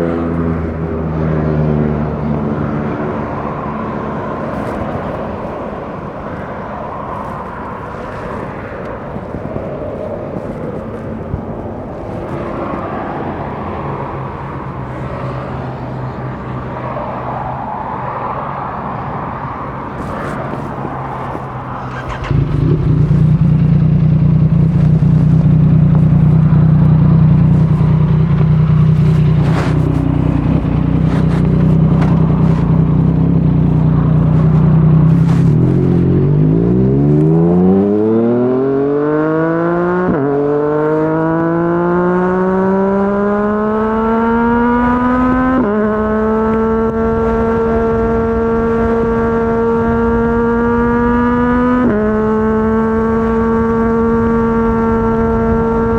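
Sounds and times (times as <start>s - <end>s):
wind noise: 0.0s - 40.4s, 41.2s - 55.9s
motorcycle engine accelerating: 18.6s - 55.9s.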